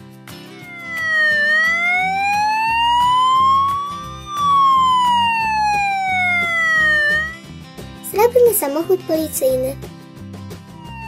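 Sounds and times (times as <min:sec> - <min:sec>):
children's background music: 0:00.0 - 0:11.0
cartoon siren wail: 0:00.5 - 0:07.4, 0:10.7 - 0:11.0.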